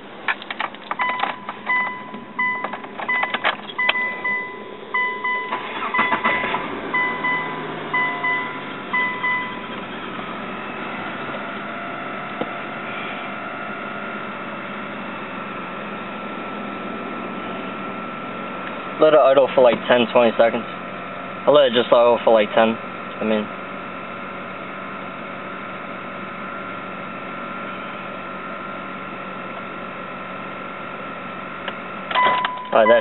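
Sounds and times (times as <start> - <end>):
car engine cranking and starting: 0.0 - 33.0
car engine idling: 0.0 - 33.0
car warning chime beeping: 0.9 - 11.0, 32.1 - 33.0.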